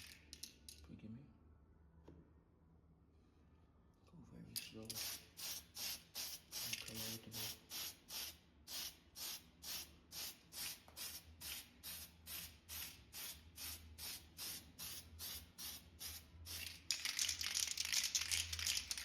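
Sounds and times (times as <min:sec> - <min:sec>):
spray paint can hissing: 0:05.0 - 0:19.0.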